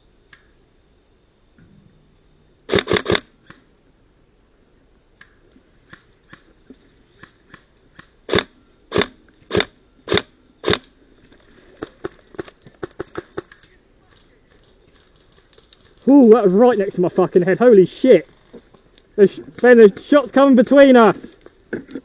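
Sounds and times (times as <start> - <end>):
distant airsoft clicks and pops: 2.7 - 3.7, 5.2 - 10.9, 11.8 - 16.0.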